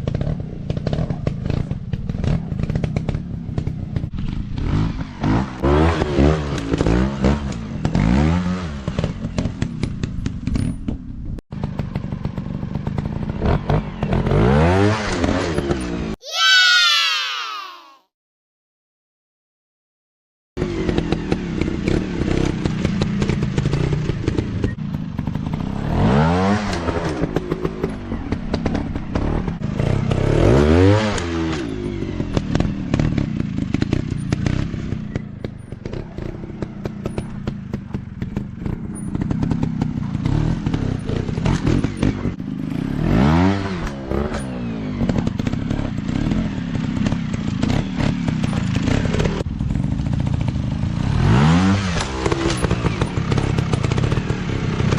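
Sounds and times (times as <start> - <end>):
dirt bike engines revving: 20.6 - 54.9.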